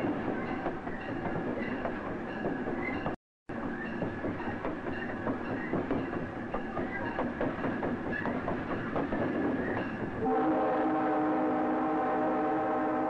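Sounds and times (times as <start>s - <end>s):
train wheels clattering over joints: 0.0s - 10.2s
train horn chord: 10.2s - 13.0s.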